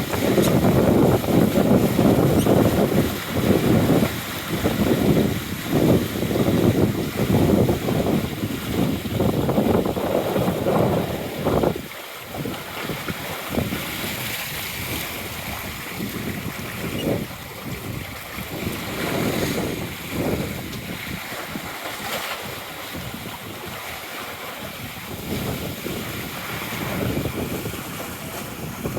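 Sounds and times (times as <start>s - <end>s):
waves splashing against hull: 0.0s - 28.9s
wind buffeting microphone: 0.0s - 28.9s.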